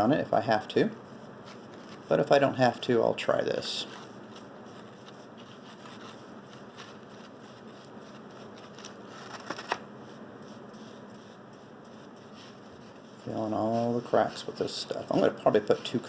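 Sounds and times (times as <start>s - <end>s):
paintbrush rustling: 3.6s - 9.3s, 10.0s - 16.0s.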